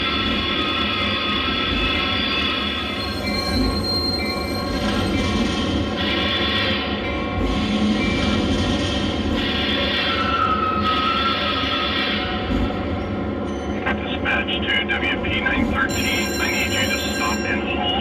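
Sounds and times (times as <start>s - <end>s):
wheels squealing on rails: 0.0s - 12.8s
train rumble and rattle: 0.0s - 18.0s.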